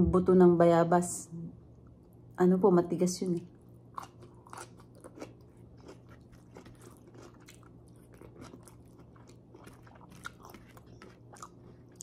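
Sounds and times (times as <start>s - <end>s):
person chewing food: 3.9s - 12.0s.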